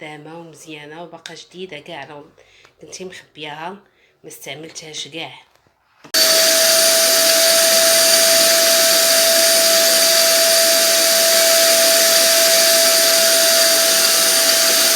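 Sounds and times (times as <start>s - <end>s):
vacuum cleaner running: 6.2s - 14.9s.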